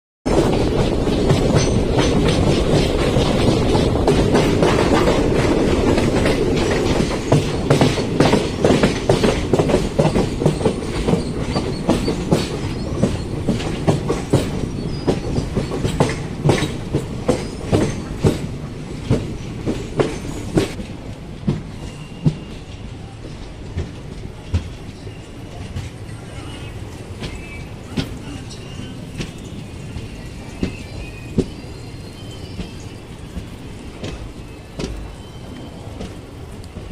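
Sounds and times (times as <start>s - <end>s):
train wheels clattering over joints: 0.3s - 36.9s.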